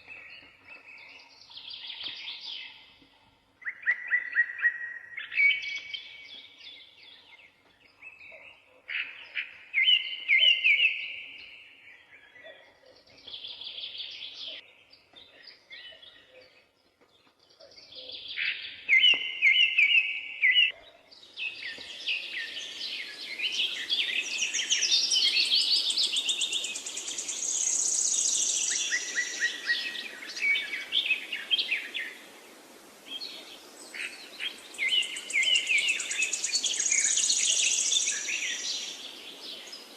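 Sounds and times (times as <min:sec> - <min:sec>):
songbirds chirping: 0:00.0 - 0:39.9
steady hiss: 0:21.4 - 0:39.9.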